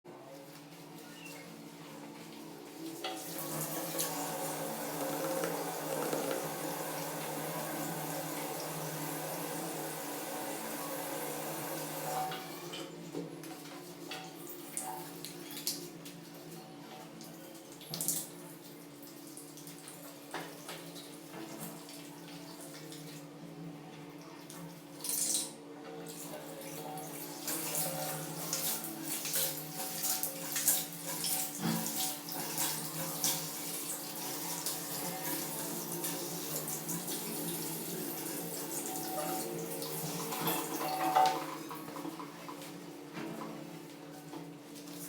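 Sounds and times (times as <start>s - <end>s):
water running from tap into sink: 3.2s - 12.5s.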